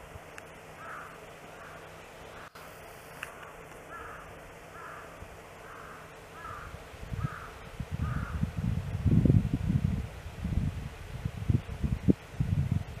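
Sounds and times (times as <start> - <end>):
bird calling: 0.7 - 8.4
low rumbling on microphone: 6.9 - 13.0.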